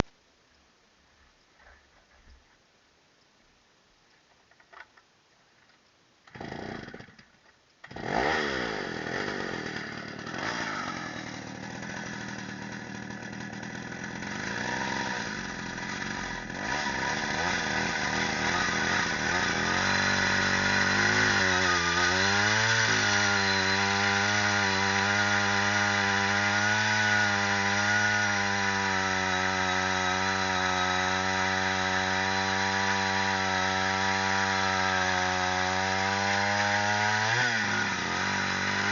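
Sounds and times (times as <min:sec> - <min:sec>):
chainsaw starting and running: 0:06.3 - 0:38.9.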